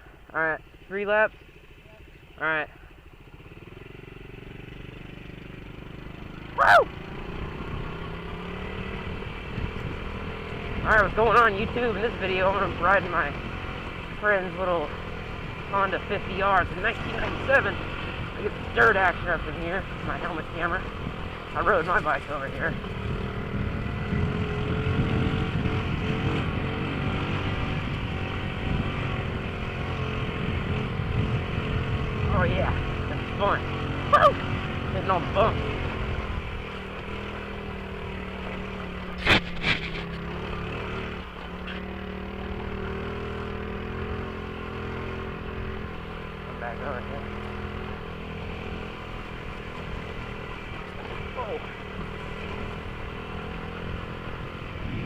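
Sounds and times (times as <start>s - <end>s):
small motorbike engine running: 1.4s - 55.0s
person shouting: 6.5s - 6.9s, 34.1s - 34.5s.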